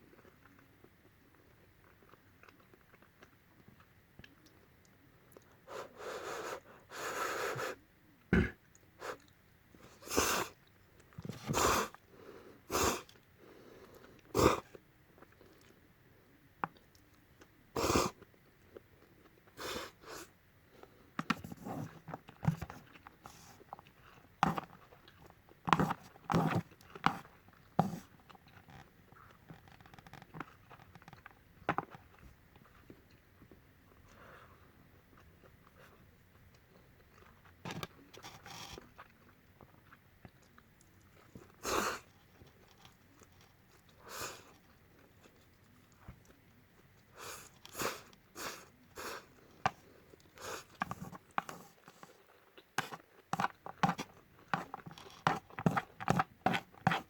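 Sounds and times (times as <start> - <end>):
smacking and chewing: 0.0 - 5.7, 13.0 - 15.9, 20.8 - 57.0.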